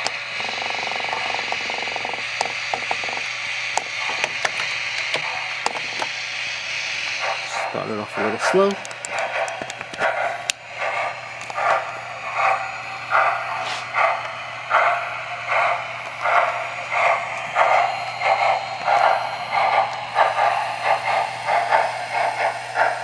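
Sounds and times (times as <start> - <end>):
model steam locomotive chuffing: 0.0 - 23.0.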